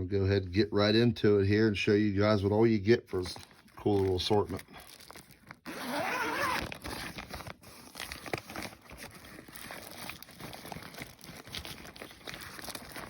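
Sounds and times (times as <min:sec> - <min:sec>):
packaging crinkling and rustling: 0:02.6 - 0:13.0
packaging tearing: 0:03.2 - 0:13.0.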